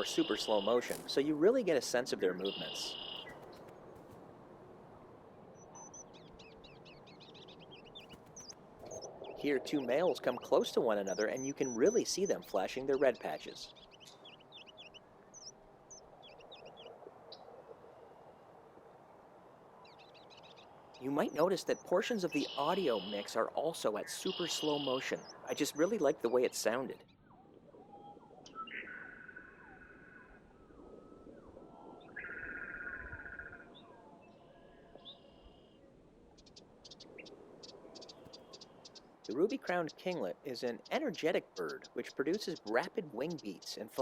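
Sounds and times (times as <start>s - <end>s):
bird singing high notes: 0.0s - 3.5s, 5.6s - 16.7s, 21.0s - 35.7s.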